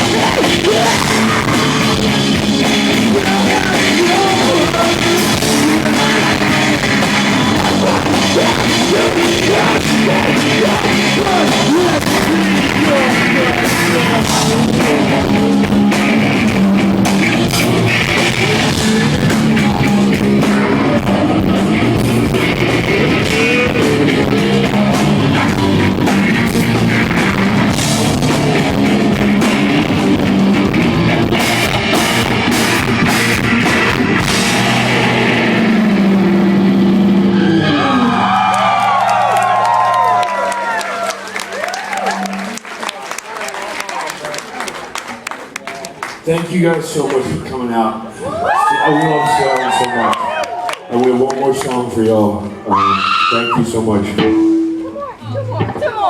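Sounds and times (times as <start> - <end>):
person singing: 0.0 - 30.8
drum kit: 0.0 - 42.7
electric guitars: 0.0 - 42.8, 52.4 - 56.0.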